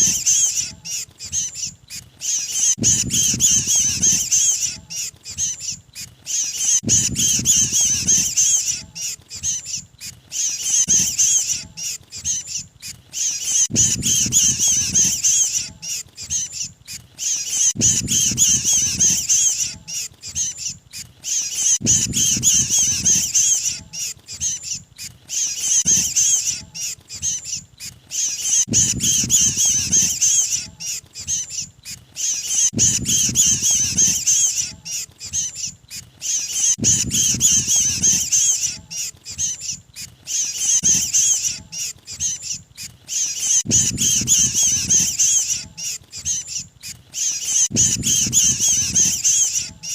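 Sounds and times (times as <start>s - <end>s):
birds chattering distress calls: 0.0s - 49.9s.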